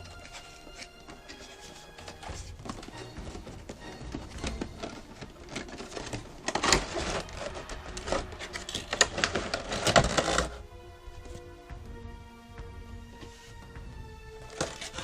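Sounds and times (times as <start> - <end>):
packaging crinkling and rustling: 0.0 - 10.6, 14.4 - 15.0.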